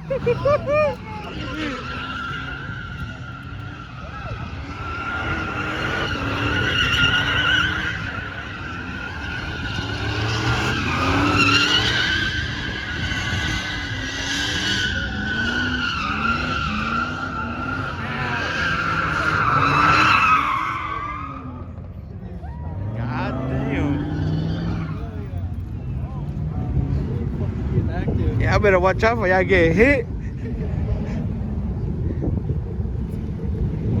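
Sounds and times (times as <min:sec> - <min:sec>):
engine revving: 0:01.2 - 0:20.6, 0:22.8 - 0:28.7.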